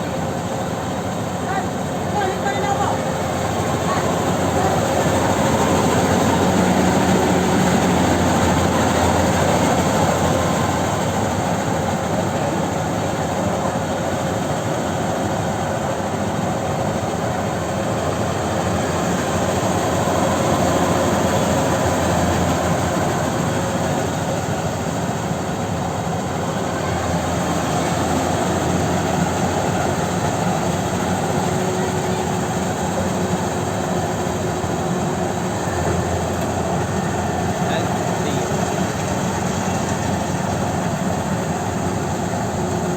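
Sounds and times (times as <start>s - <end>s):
combine harvester engine droning: 0.0s - 42.9s.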